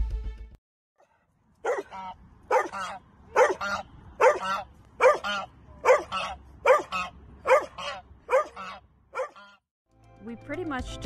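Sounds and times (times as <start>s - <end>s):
geese honking: 1.7s - 9.6s.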